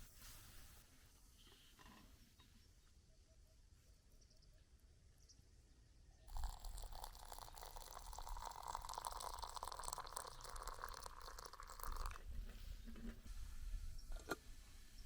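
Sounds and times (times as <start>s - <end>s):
liquid pouring into a container: 6.3s - 12.5s.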